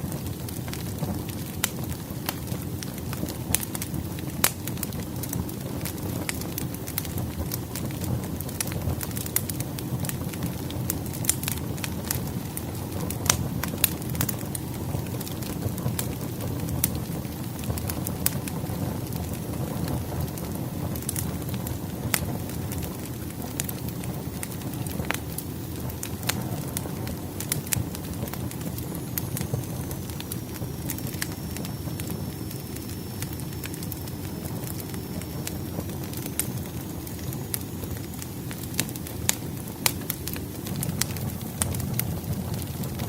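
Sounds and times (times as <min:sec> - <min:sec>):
low rumble of flames: 0:00.0 - 0:43.0
wood crackling and popping: 0:00.0 - 0:43.0.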